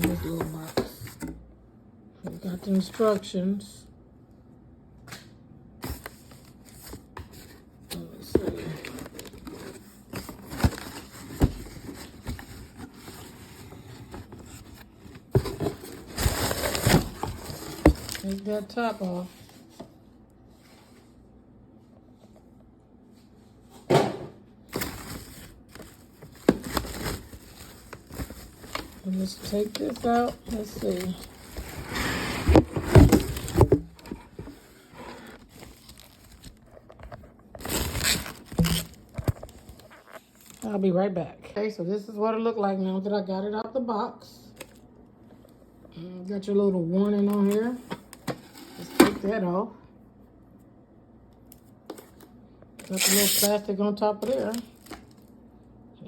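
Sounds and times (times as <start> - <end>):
cardboard and paper rustling: 0.0 - 1.3, 5.8 - 19.9, 24.7 - 40.7.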